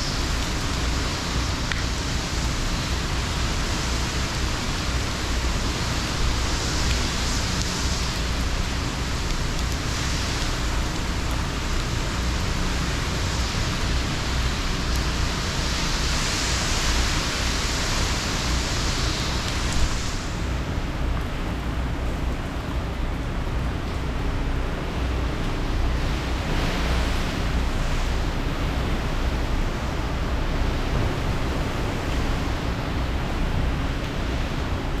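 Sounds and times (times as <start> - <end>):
heavy rain: 0.0 - 35.0
hurricane wind: 0.0 - 35.0.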